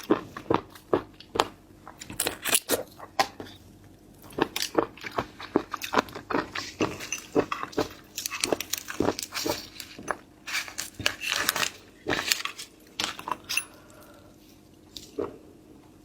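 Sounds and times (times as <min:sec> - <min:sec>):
person chewing: 0:04.2 - 0:14.3.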